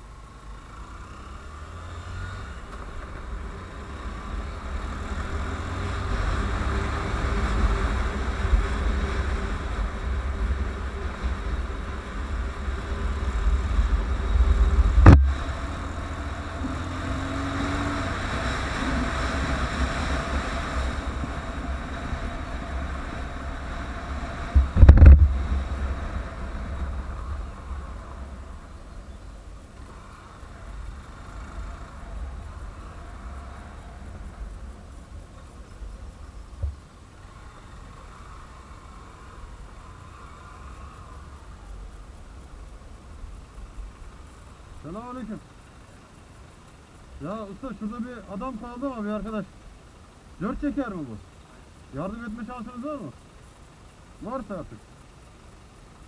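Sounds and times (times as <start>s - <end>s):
motorcycle engine running: 0.0s - 54.8s
wind rumble on microphone: 3.0s - 29.9s.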